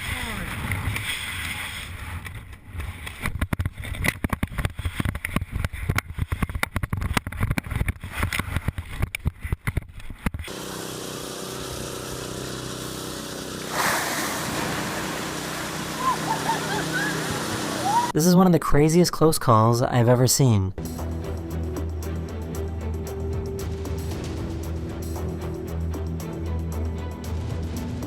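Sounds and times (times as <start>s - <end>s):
engine drone: 10.5s - 18.2s, 20.8s - 28.0s
rush of noise: 13.7s - 18.1s.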